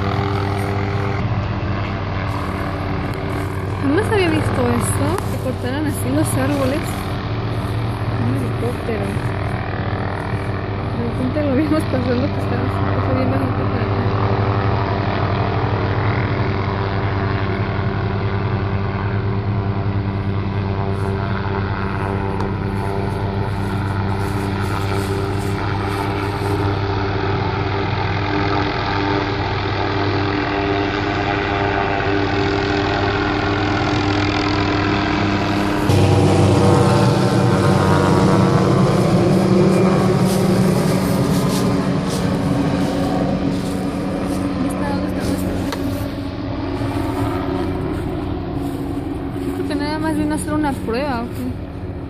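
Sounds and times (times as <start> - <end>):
helicopter drone: 0.0 - 52.0.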